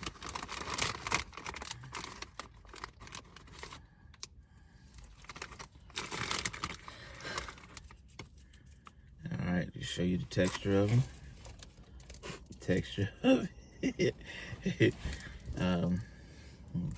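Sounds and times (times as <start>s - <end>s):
chip bag crinkling: 0.0s - 3.9s, 5.0s - 8.7s.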